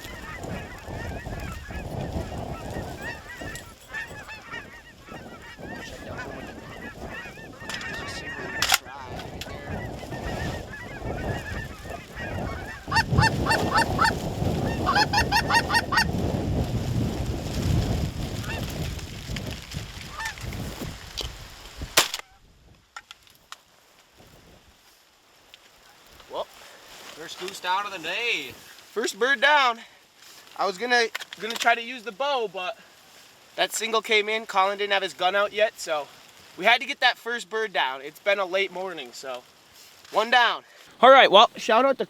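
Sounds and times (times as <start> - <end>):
geese honking: 0.0 - 16.2, 20.1 - 20.4
wind on microphone: 0.0 - 22.9
shotgun shot: 22.0 - 22.2.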